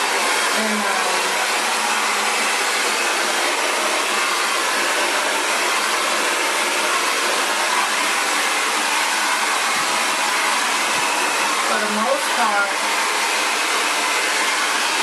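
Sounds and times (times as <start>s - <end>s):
hair dryer blowing air: 0.0s - 15.0s.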